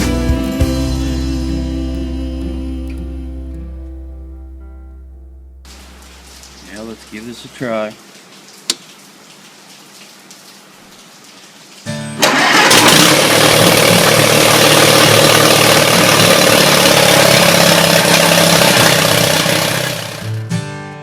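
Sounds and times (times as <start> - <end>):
tractor engine running: 12.2 - 20.4.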